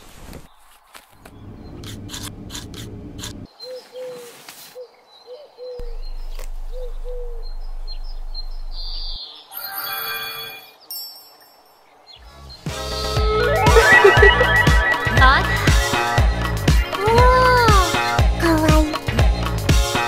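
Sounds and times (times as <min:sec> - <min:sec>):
steady low hum: 0:01.3 - 0:03.5, 0:05.8 - 0:09.2.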